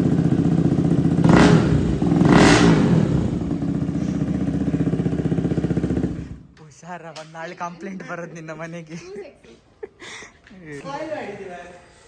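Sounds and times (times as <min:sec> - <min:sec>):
motorcycle engine revving and idling: 0:00.0 - 0:06.5.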